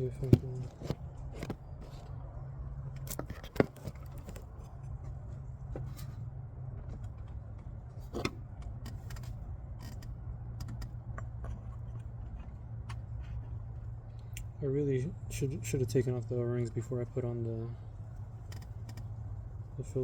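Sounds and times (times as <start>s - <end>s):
steady low hum: 0.0s - 20.0s
hand tool clicks and scrapes: 8.1s - 13.4s.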